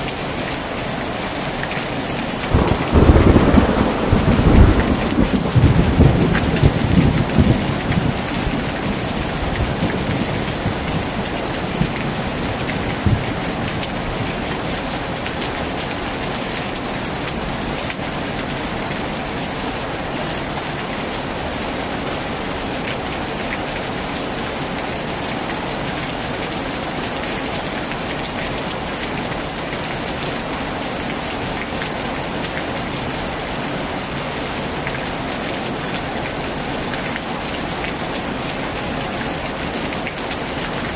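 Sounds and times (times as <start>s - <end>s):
heavy rain on a tin roof: 0.0s - 40.9s
low thunder rumble: 2.5s - 12.0s.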